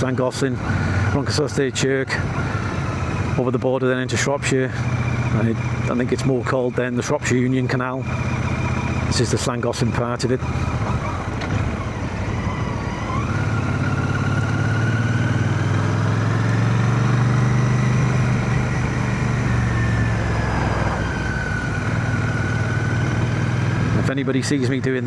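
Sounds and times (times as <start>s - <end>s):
motorcycle engine running: 0.0s - 25.0s
wind noise in helmet: 22.6s - 23.5s.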